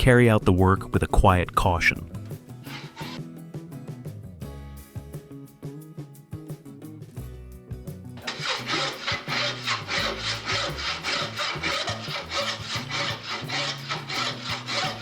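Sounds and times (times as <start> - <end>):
faint background music: 0.0 - 15.0
hand saw cutting wood: 2.7 - 3.2, 8.2 - 15.0.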